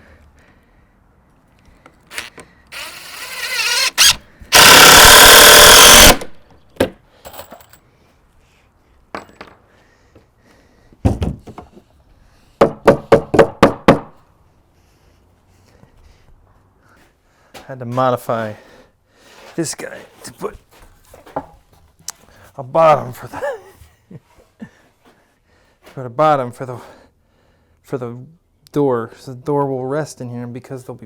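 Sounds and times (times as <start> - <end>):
power tool spinning: 2.1 - 6.4.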